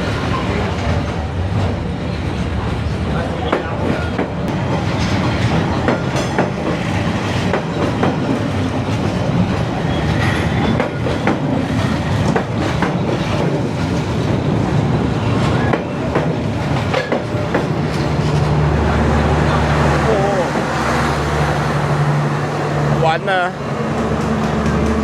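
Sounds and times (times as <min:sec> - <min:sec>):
train rumbling past: 0:00.0 - 0:25.0
wheels clacking over rail joints: 0:03.4 - 0:14.7, 0:15.4 - 0:18.6.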